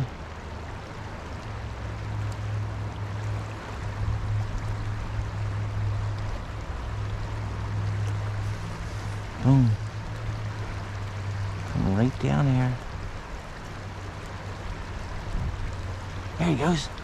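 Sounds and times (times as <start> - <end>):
stream water rushing and splashing: 0.0 - 17.0
low rumble: 1.4 - 13.2.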